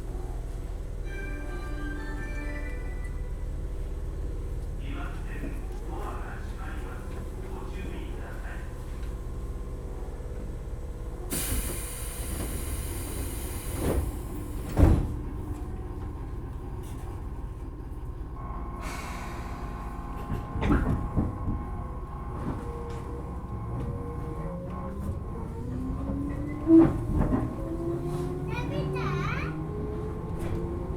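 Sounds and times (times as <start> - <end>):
train wheels rumbling on rails: 0.0 - 30.9
hiss: 11.3 - 14.3.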